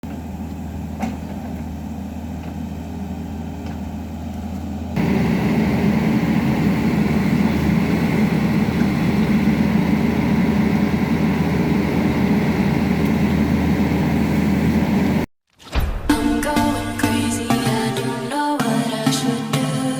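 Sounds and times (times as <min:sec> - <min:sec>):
excavator diesel engine running: 0:00.0 - 0:15.3.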